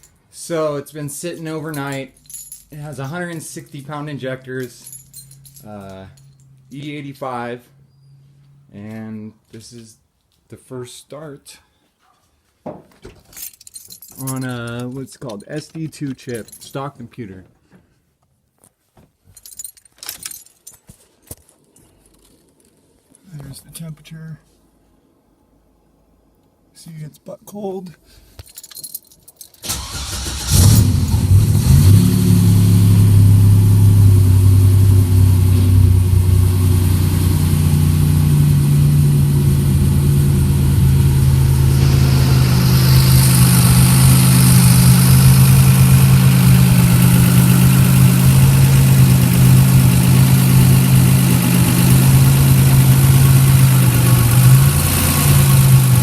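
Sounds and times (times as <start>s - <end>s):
car engine starting and idling: 1.5s - 9.0s, 29.6s - 56.0s.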